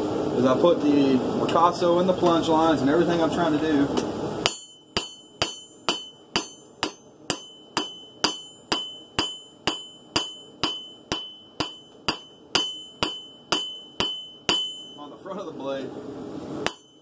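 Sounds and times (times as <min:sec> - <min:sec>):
hammer striking steel on anvil: 0:04.4 - 0:15.2, 0:16.6 - 0:17.0.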